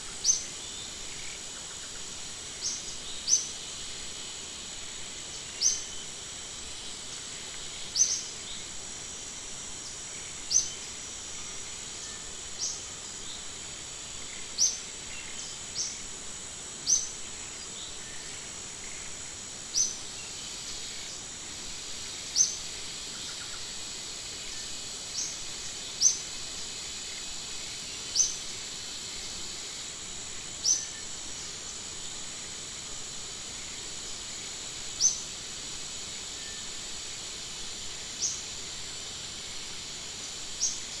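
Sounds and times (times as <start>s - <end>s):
insect chorus hiss: 0.0s - 41.0s.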